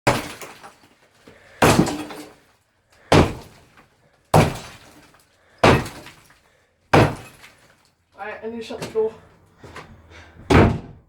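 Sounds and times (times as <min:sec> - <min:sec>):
sledgehammer striking concrete: 0:00.1 - 0:00.8, 0:01.6 - 0:02.4, 0:03.1 - 0:03.6, 0:04.4 - 0:06.3, 0:07.0 - 0:07.5.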